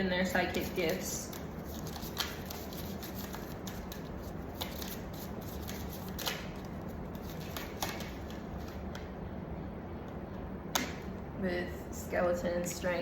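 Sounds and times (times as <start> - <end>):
low room hum: 0.0 - 13.0
cards tapping and snapping: 0.5 - 9.1.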